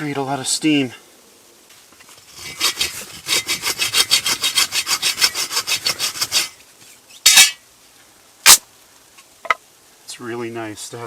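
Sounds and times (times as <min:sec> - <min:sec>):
hand saw cutting wood: 0:02.2 - 0:06.6.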